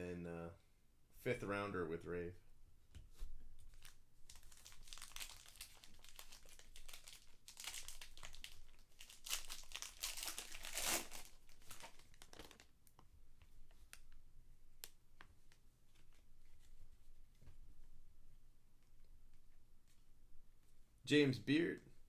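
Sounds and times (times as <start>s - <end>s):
foil wrapper crackling: 3.7s - 13.0s.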